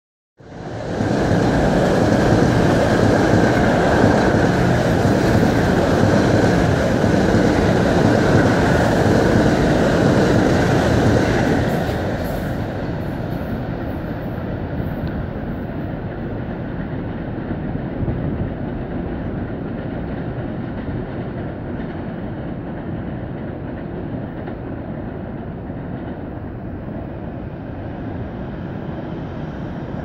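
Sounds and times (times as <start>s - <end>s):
train wheels rumbling on rail: 0.4s - 30.0s.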